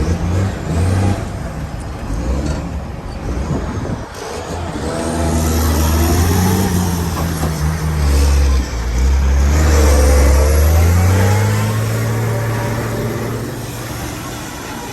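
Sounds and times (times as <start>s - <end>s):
diesel truck engine accelerating: 0.0s - 14.9s.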